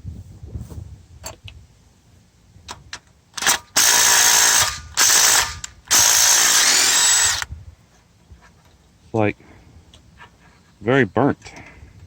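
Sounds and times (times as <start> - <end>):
handheld power tool spinning bolts: 3.4 - 7.5.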